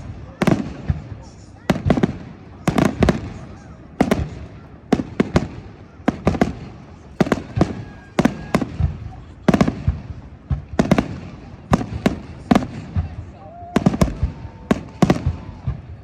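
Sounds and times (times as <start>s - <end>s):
fireworks bursting with loud bangs: 0.0s - 16.0s.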